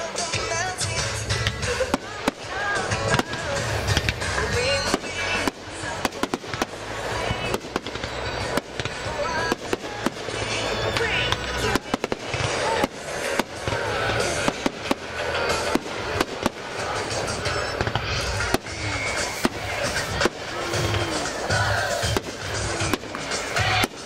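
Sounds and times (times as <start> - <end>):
firework bangs: 0.0 - 24.0
music: 0.0 - 24.0
voices: 0.0 - 24.0.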